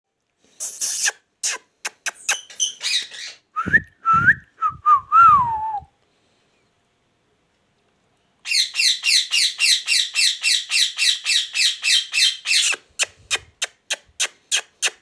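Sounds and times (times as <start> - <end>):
parrot squawking: 0.6 - 3.4, 8.5 - 15.0.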